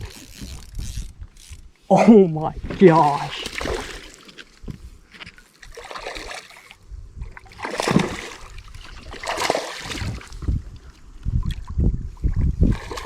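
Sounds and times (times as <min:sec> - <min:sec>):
fish thrashing water: 0:02.7 - 0:04.5, 0:05.6 - 0:10.6, 0:12.4 - 0:13.0.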